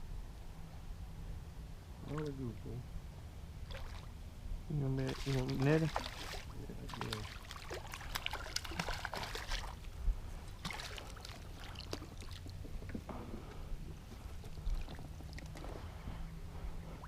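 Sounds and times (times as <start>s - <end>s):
faint hum: 0.0s - 17.0s
water splashing: 3.6s - 4.1s, 4.9s - 9.9s, 10.5s - 12.6s.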